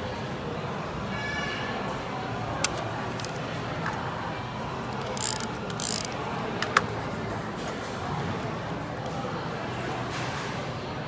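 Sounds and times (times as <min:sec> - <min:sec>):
crowd and room noise: 0:00.0 - 0:11.0
sharp clicks: 0:04.9 - 0:06.9.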